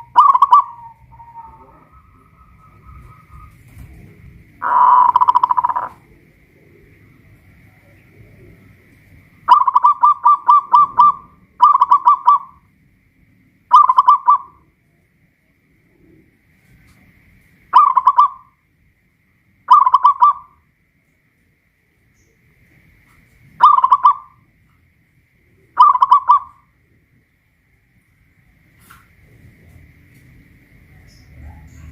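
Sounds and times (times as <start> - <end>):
dove cooing: 0.0 - 12.7, 13.7 - 14.8, 17.7 - 18.6, 19.7 - 20.6, 23.6 - 24.5, 25.5 - 26.8, 30.6 - 31.9.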